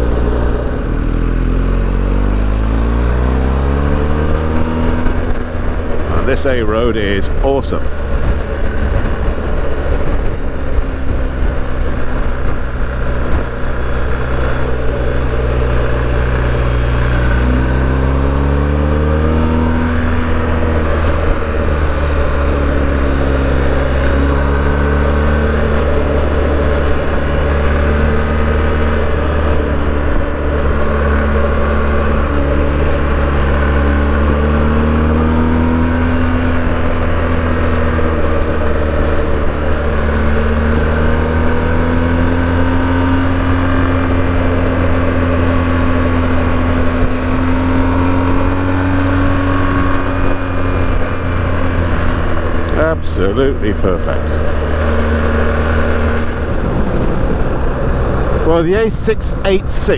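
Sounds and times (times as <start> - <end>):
motorcycle engine revving and cruising: 0.0 - 59.9
wind rush: 4.6 - 17.6, 55.4 - 59.6.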